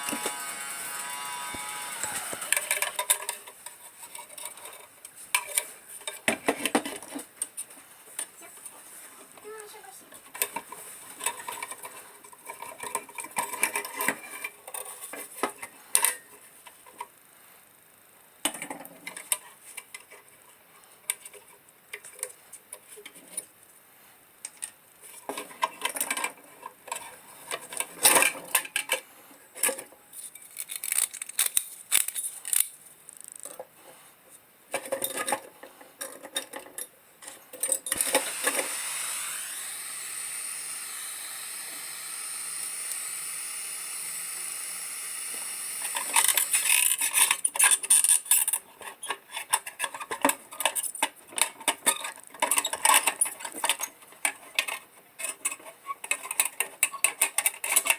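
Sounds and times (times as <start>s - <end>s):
metal lantern parts clinking: 30.2s - 32.8s
steady hiss: 37.9s - 47.2s.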